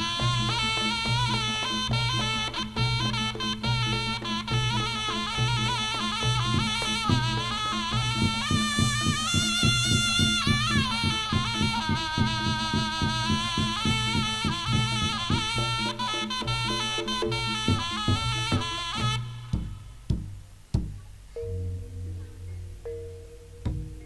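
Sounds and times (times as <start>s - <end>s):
reed wind instrument melody: 0.0s - 20.7s, 21.3s - 24.0s
quick drum strokes: 5.8s - 24.0s
steady low tone: 19.9s - 24.0s.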